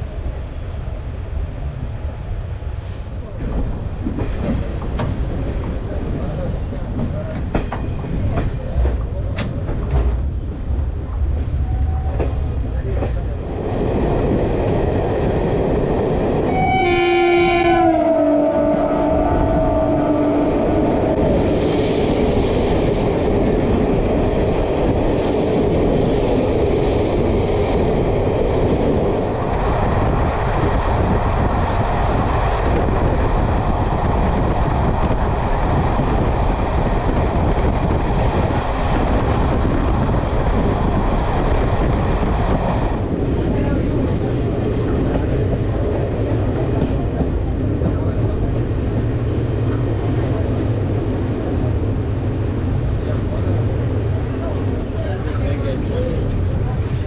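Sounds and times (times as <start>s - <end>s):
train rumble and rail clatter: 0.0s - 57.0s
train air horn: 16.5s - 20.6s.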